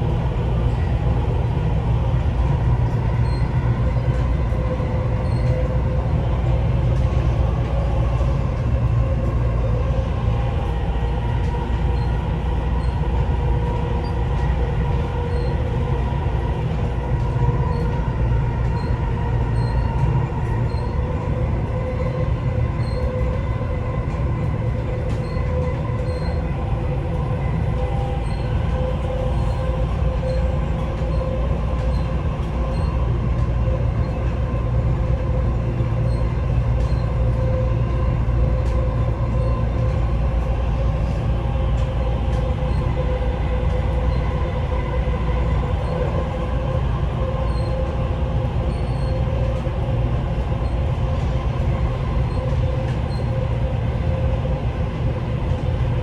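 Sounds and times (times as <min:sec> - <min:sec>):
train rumble and whine: 0:00.0 - 0:56.0.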